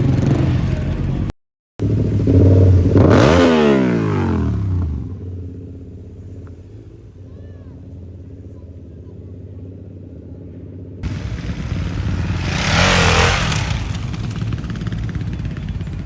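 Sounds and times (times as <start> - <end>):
distant traffic: 0.0 - 16.0
vehicle engine accelerating past: 11.0 - 16.0.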